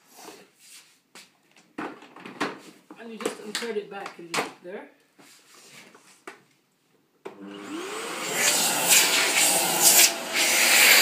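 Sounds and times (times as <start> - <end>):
vacuum cleaner running: 7.3 - 11.0.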